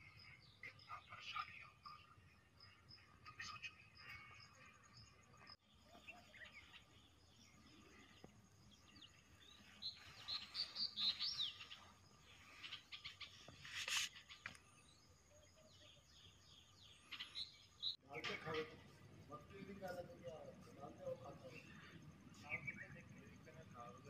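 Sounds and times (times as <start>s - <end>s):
birds chirping faintly: 0.0s - 24.0s
brief rustle: 13.4s - 14.6s.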